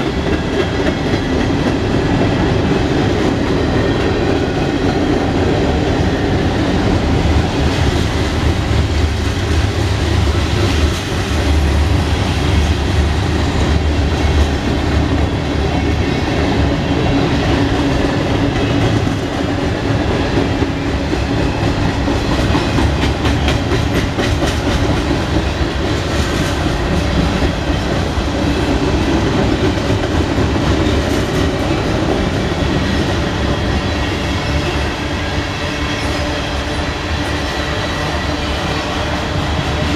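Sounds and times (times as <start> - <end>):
steel wheels rumbling on rail: 0.0 - 39.9.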